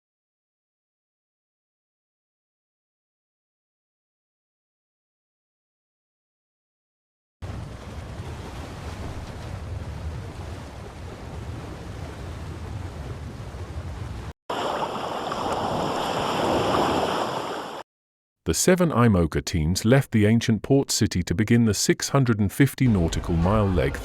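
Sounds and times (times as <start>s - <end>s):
wind buffeting microphone: 7.4s - 14.3s
water rushing past boat: 7.4s - 17.8s.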